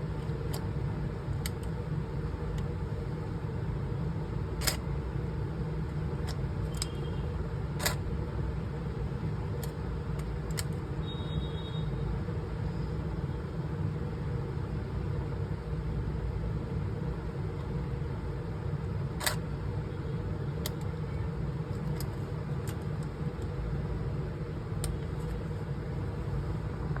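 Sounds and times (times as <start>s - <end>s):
low background rumble: 0.0s - 11.1s
small sharp clicks: 4.6s - 4.9s, 6.2s - 7.1s, 7.8s - 8.0s, 19.2s - 19.4s, 20.6s - 21.0s.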